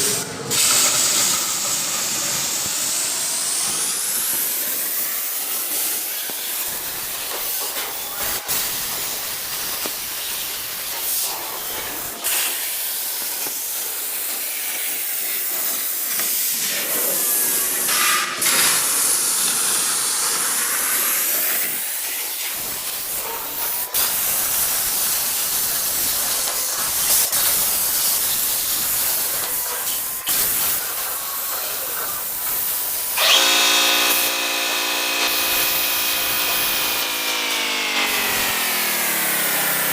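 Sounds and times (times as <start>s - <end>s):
plasma cutting torch hiss: 0.0s - 39.9s
pitched machine hum: 32.9s - 39.9s.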